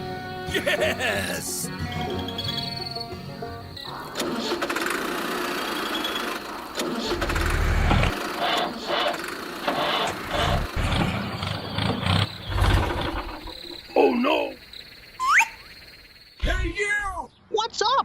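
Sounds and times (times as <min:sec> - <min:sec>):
engine starting and sputtering: 0:03.9 - 0:13.8.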